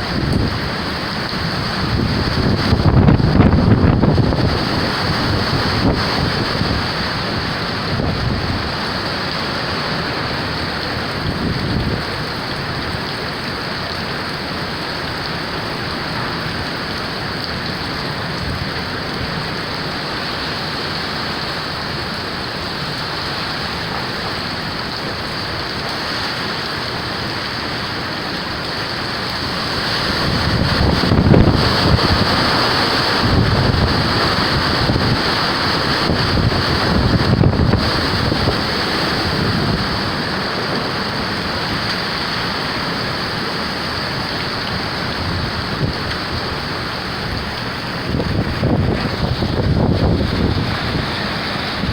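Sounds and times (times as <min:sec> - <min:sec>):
wind buffeting microphone: 0:00.0 - 0:10.1, 0:29.2 - 0:51.9
wind and rain blowing: 0:00.0 - 0:51.9.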